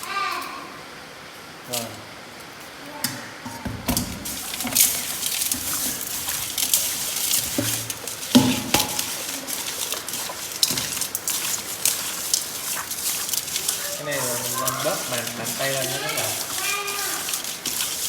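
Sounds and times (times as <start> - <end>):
gritty salt crackling: 4.0 - 18.0
wet squelching of kneaded intestine: 4.0 - 18.0.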